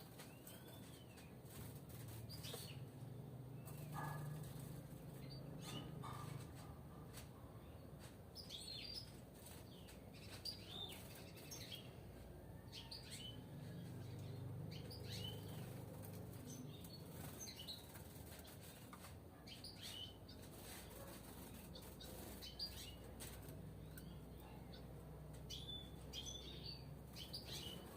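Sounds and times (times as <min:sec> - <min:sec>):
finches chirping: 0:12.7 - 0:18.8.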